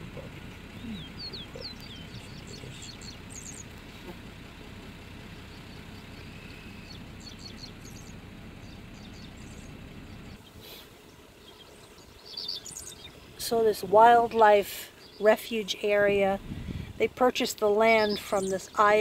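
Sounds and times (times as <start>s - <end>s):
low rumble: 0.0s - 10.6s, 16.2s - 17.2s
songbirds chirping: 0.0s - 19.0s.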